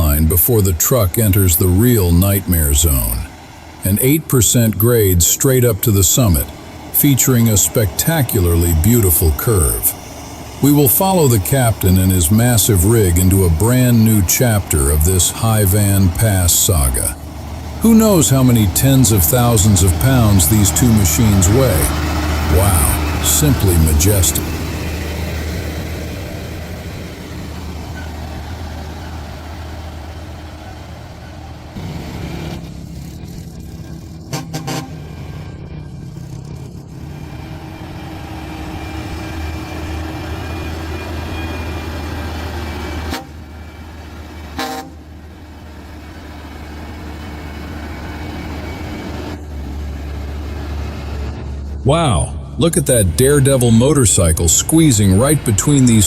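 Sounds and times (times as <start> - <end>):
diesel truck engine under load: 0.0 - 56.0
traffic noise: 0.0 - 56.0
truck horn toots: 34.2 - 35.2, 42.8 - 43.5, 44.4 - 45.1.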